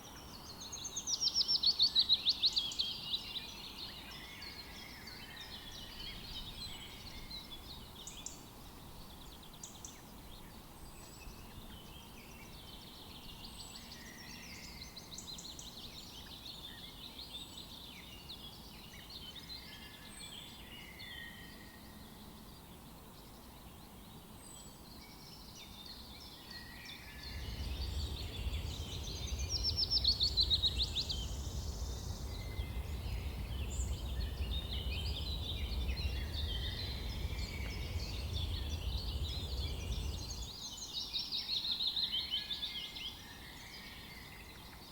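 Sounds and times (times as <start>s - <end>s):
songbirds chirping and trilling: 0.0s - 44.9s
low rumble: 26.9s - 40.8s.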